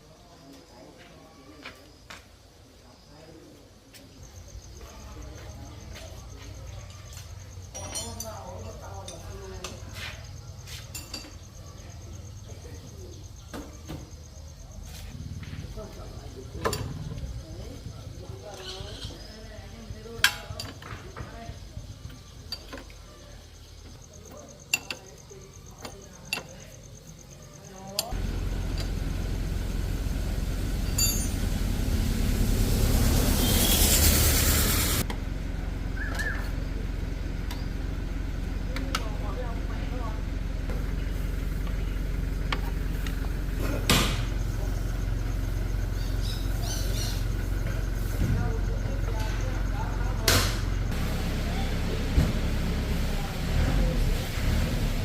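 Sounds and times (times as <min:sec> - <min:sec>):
cricket chirping: 0:00.0 - 0:52.7
engine idling: 0:11.4 - 0:55.0.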